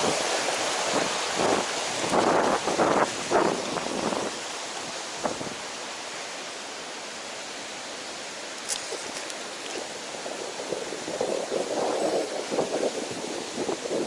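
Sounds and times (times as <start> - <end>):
wind buffeting microphone: 0.0 - 5.7, 8.9 - 14.0
steady rushing hiss: 0.0 - 14.0.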